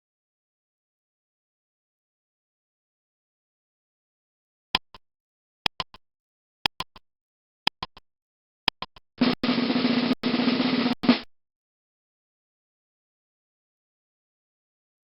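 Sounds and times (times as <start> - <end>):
ticks with faint after-clicks: 4.8 - 5.0, 5.7 - 6.0, 6.7 - 7.0, 7.7 - 8.0, 8.7 - 9.4
snare drum roll: 9.2 - 11.3.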